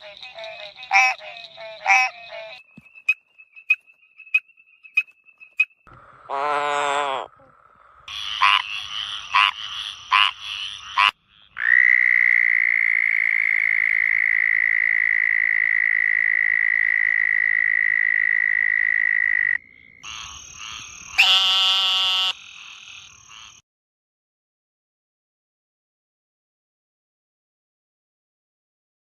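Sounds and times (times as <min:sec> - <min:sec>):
frog croaking: 0:00.0 - 0:02.6, 0:05.9 - 0:23.6
high-pitched frog trill: 0:00.0 - 0:03.8, 0:06.3 - 0:23.6.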